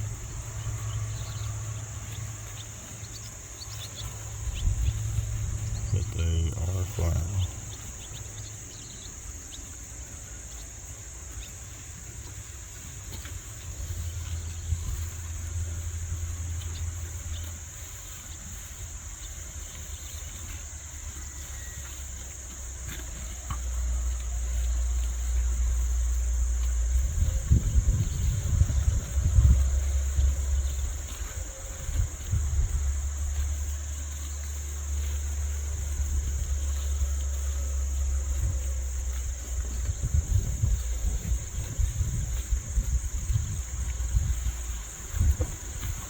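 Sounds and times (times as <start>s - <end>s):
insects droning: 0.0s - 46.0s
low rumble: 4.2s - 8.0s.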